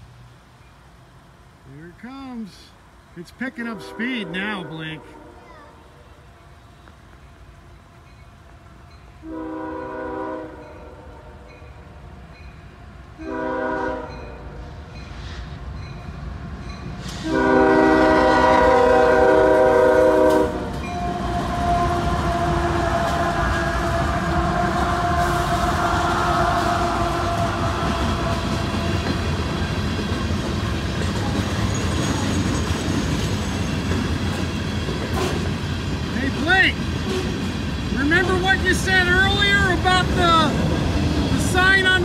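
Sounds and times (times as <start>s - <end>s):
train rumbling past: 0.0s - 42.0s
locomotive air horn blasts: 3.5s - 5.4s, 9.2s - 11.5s, 13.2s - 14.6s, 17.1s - 29.5s
wheels clacking on rails: 6.2s - 42.0s.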